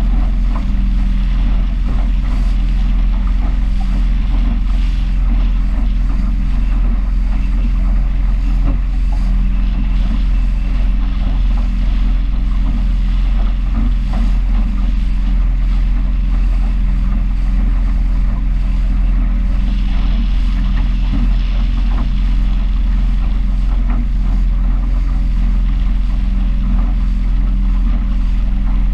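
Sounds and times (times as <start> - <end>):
powerboat engine running: 0.0 - 28.9
wind and water rushing: 0.0 - 28.9.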